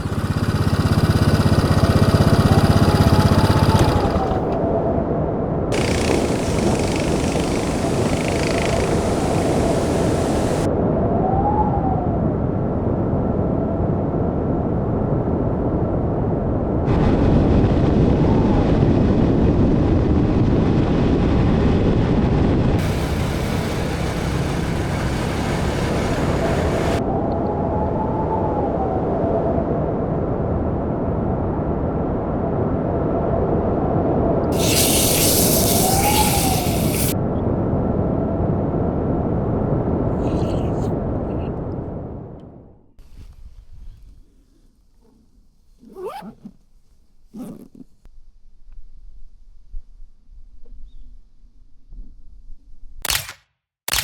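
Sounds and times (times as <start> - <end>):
motorcycle engine running: 0.0 - 4.6, 5.7 - 10.7, 22.8 - 27.0
heavy wind noise: 0.0 - 44.5.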